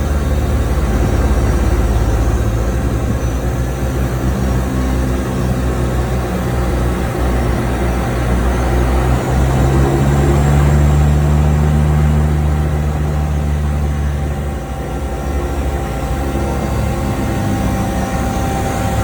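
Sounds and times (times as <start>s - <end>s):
seaplane engines droning: 0.0s - 19.0s.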